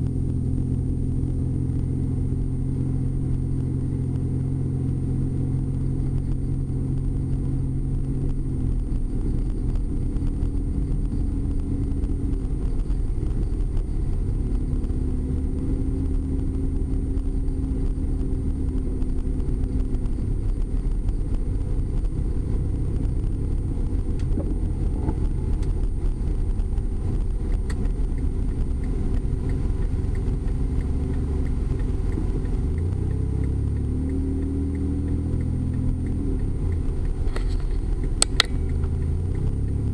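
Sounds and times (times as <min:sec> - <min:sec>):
car engine hum: 0:00.0 - 0:39.9
road rumble: 0:00.0 - 0:39.9.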